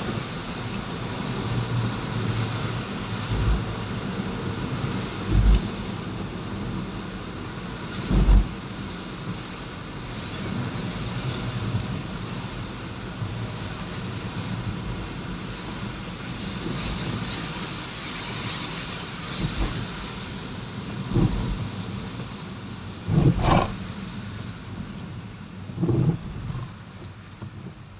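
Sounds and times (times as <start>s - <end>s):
vehicle and road noise: 17.7s - 27.9s
wind buffeting microphone: 23.0s - 23.8s
dull low thumps: 23.1s - 23.7s.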